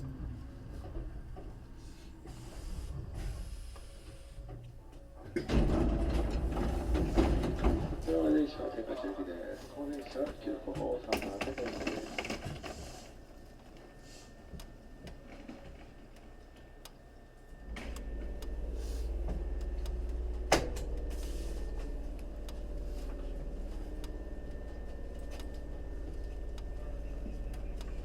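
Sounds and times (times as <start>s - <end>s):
air compressor droning: 12.1s - 28.0s.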